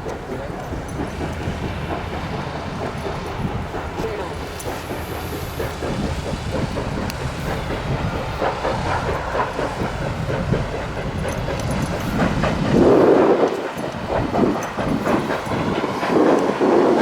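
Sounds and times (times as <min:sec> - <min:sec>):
train wheels clacking over rails: 0:00.0 - 0:17.0.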